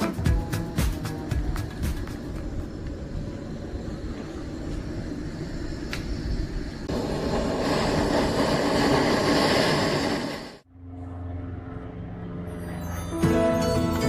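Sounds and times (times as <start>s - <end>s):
soft music with low tones: 0.0s - 2.8s, 10.7s - 14.0s
gas burner flame roaring: 0.4s - 10.7s.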